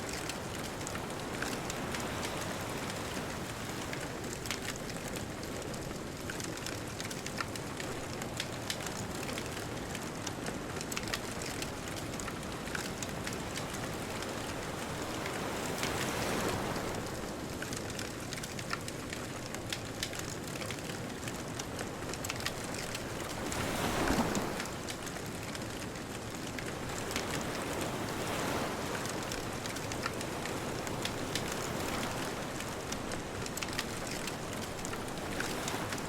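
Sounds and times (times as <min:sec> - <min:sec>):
ocean surf: 0:00.0 - 0:05.8, 0:11.2 - 0:17.8, 0:21.3 - 0:36.0
wood fire crackling and popping: 0:00.1 - 0:14.0, 0:17.2 - 0:36.0.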